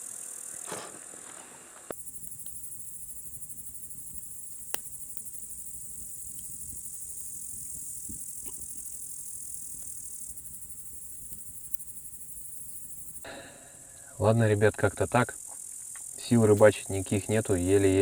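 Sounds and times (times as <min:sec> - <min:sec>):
crickets trilling: 0:01.9 - 0:13.4.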